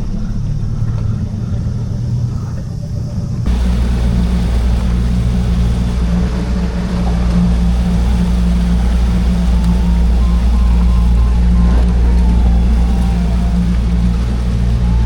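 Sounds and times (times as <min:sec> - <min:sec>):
engine humming: 0:03.5 - 0:15.0
rushing noise: 0:03.5 - 0:15.0.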